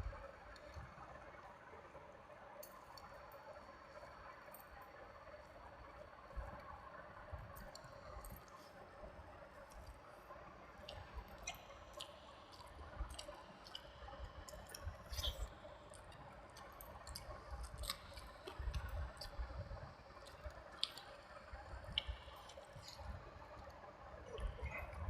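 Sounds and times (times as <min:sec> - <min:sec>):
wet squishing eating sounds: 0:10.8 - 0:19.5, 0:20.2 - 0:23.2.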